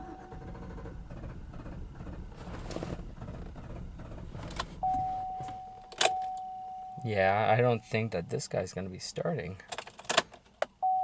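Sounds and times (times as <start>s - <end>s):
low rumble: 0.2s - 5.4s.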